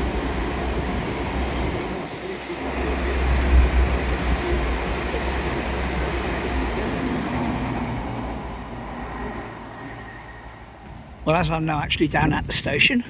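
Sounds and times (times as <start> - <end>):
train running: 0.0 - 12.0
wind buffeting microphone: 10.8 - 13.0.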